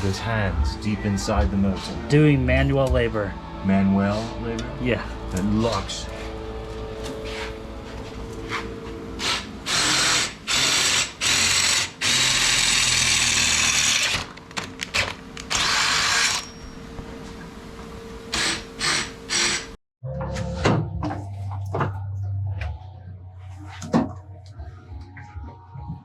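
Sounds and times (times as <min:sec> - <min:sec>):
power tool driving fastener: 0:09.2 - 0:14.3, 0:14.9 - 0:16.4, 0:18.3 - 0:19.8.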